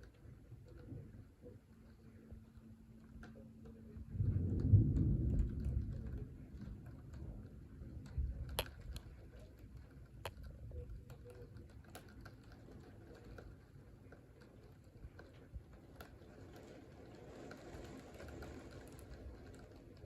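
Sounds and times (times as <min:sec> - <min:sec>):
thunder rumbling: 0:04.0 - 0:08.4.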